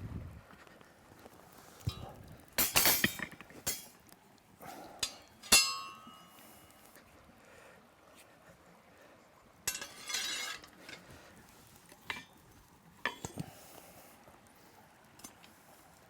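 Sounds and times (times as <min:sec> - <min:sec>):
sharp ringing clink: 0:05.0 - 0:06.4
scraping: 0:09.7 - 0:11.1.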